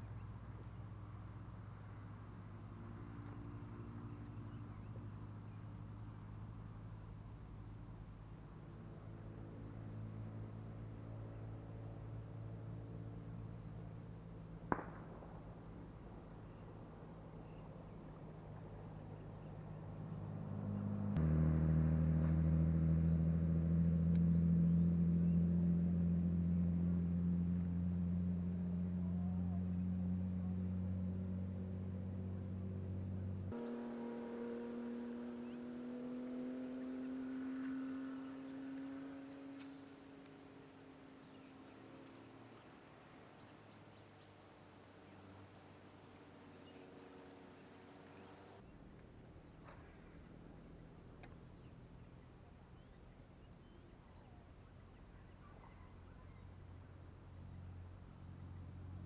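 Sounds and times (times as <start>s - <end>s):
engine running: 0.0s - 59.0s
faint bird chirps: 33.6s - 48.8s, 51.3s - 56.9s.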